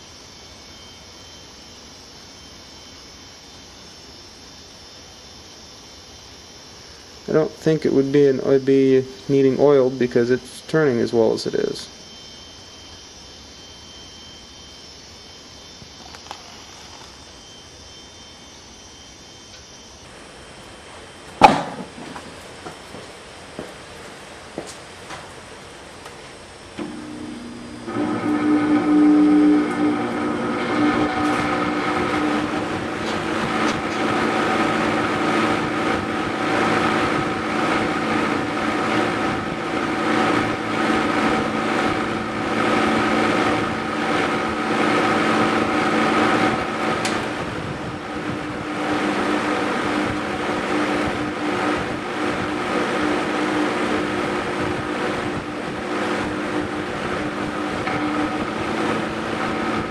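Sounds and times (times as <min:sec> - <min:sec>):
electric fan humming: 0:00.0 - 0:59.9.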